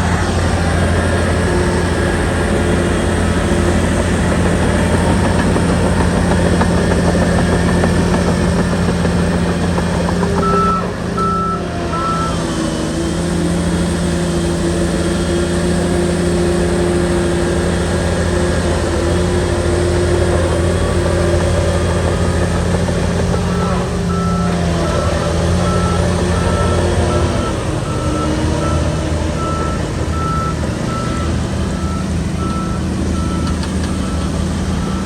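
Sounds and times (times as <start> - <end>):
diesel engine running: 0.0 - 35.0
reversing alarm beeps: 10.4 - 12.6, 23.3 - 35.0.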